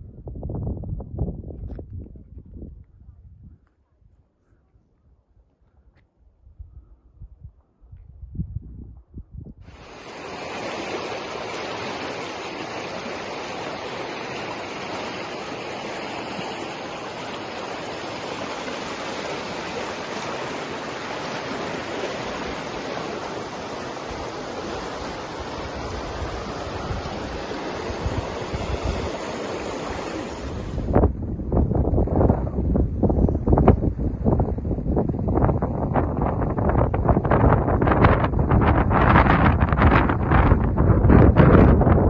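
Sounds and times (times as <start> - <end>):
rush of flowing water: 9.7 - 32.3.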